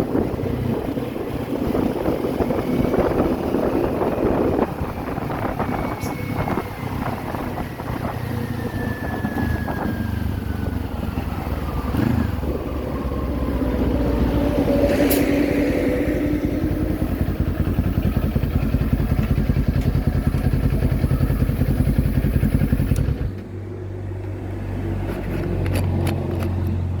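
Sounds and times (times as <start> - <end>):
wind noise on microphone: 0.0 - 19.6
motorcycle engine running: 15.4 - 23.4.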